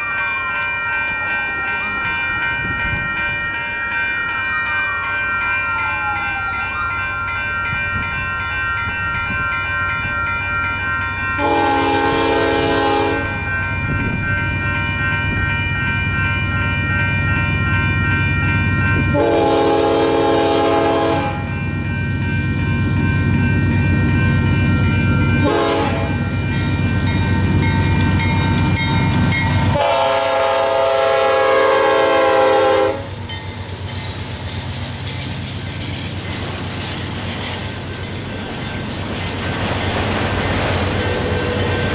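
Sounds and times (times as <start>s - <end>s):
crossing bells ringing: 0.0s - 41.9s
locomotive engine rumbling: 0.0s - 41.9s
train wheel clatter: 0.9s - 3.6s, 32.4s - 41.9s
train horn blasts: 11.4s - 13.4s, 19.1s - 21.6s, 25.4s - 26.4s, 29.7s - 33.2s.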